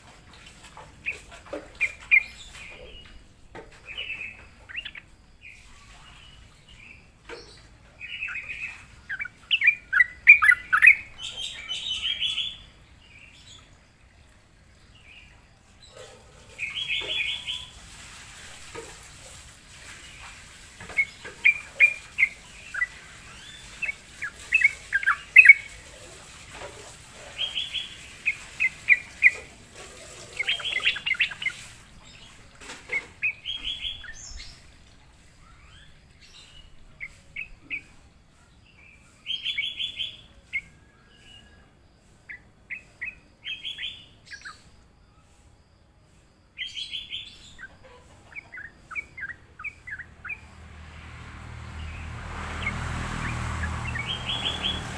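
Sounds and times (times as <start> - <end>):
bulbul singing: 0.8 - 13.8, 20.0 - 38.1, 46.6 - 54.9.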